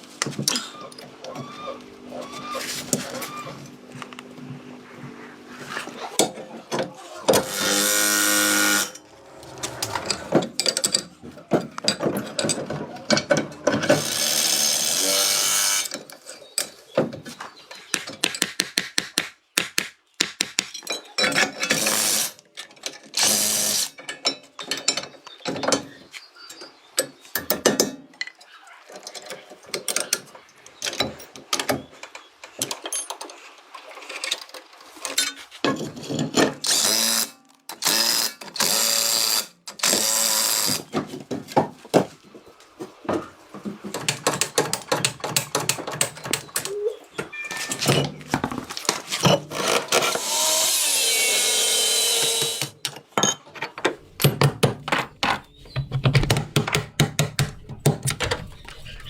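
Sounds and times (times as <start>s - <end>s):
power tool running: 7.3s - 10.5s, 14.0s - 15.9s, 36.7s - 40.9s, 49.5s - 52.8s
tool clicks and ratcheting: 36.6s - 40.9s, 49.4s - 52.9s.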